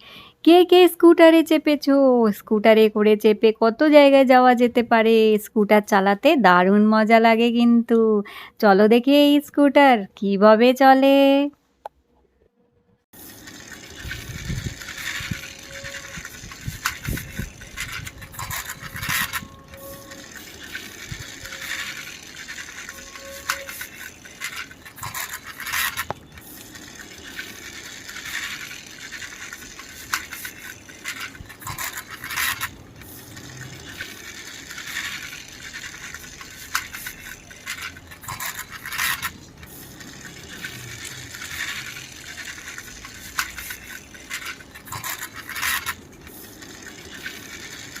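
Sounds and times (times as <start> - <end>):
toy wheels scraping and rattling: 13.2 - 48.0.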